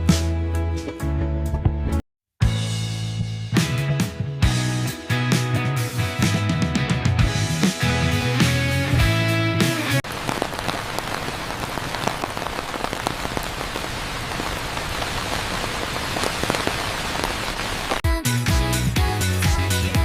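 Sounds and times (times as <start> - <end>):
music: 0.0 - 10.0, 18.0 - 20.0
rain on hard surfaces: 10.0 - 18.0.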